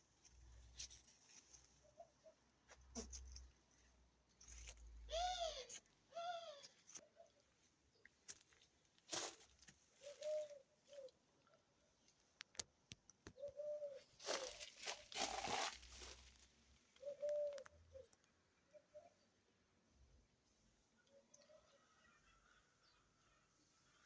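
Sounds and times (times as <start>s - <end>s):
bird cooing: 5.1s - 7.4s, 10.0s - 11.2s, 13.4s - 16.1s, 17.0s - 19.3s
bird calls: 10.0s - 11.2s, 13.3s - 16.2s, 17.0s - 19.4s.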